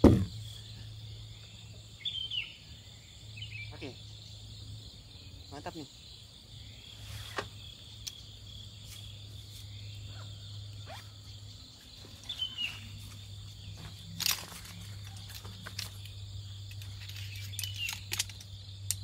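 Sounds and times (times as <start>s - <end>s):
insects chirring: 0.0s - 19.0s
rustles: 6.9s - 11.2s, 11.8s - 19.0s.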